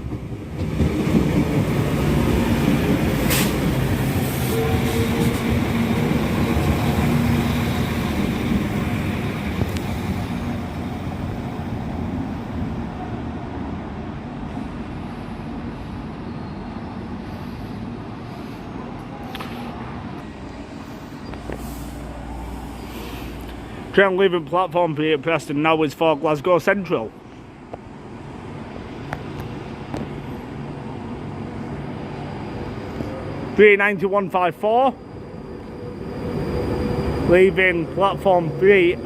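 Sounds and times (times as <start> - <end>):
train engine humming: 0.0 - 24.6, 34.6 - 39.0.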